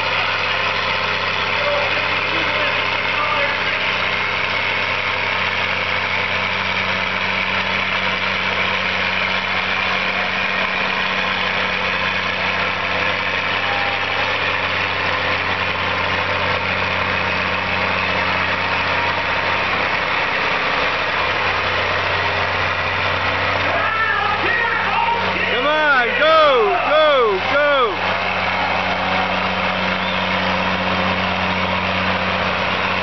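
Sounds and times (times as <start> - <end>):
heavy vehicle engine idling: 0.0 - 33.0.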